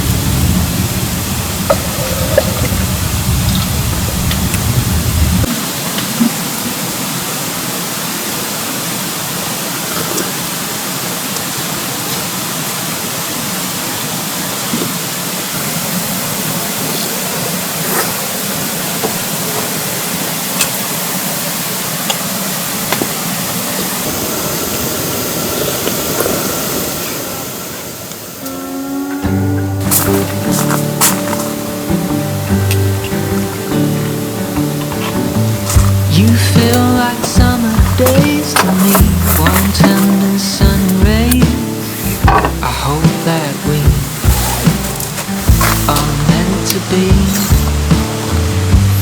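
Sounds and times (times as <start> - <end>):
water drips: 0.0 - 7.6
steady rain: 0.0 - 49.0
stream rushing: 0.0 - 49.0
music: 29.2 - 49.0.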